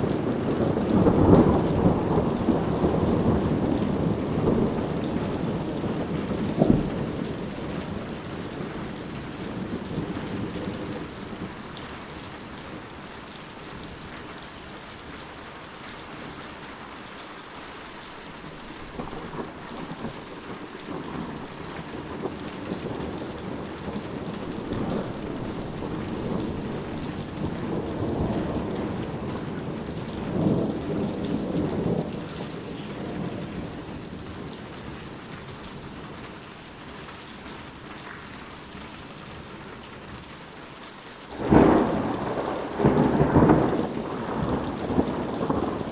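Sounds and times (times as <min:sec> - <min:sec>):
low thunder rumbling: 0:00.0 - 0:13.0, 0:18.8 - 0:36.2, 0:41.3 - 0:45.9
steady rain falling: 0:00.0 - 0:45.9.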